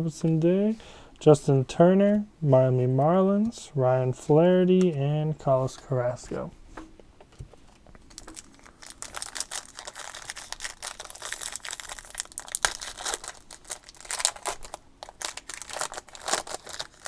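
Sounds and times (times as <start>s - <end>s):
foil wrapper tearing and crinkling: 8.1s - 17.0s.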